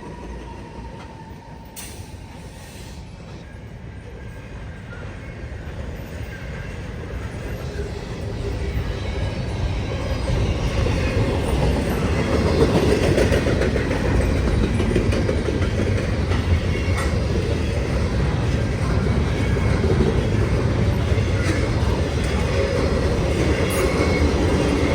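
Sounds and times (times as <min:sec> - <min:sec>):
train cars rumbling past: 0:00.0 - 0:24.9
wheels clacking over rail joints: 0:10.3 - 0:24.9.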